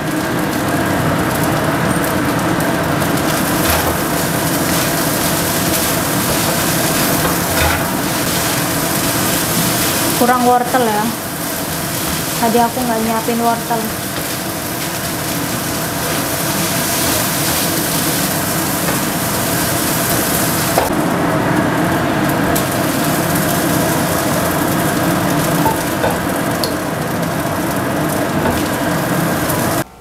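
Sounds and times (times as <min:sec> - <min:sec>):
rice sizzling in wok: 0:00.0 - 0:29.9
spatula stirring and scraping: 0:14.0 - 0:20.9.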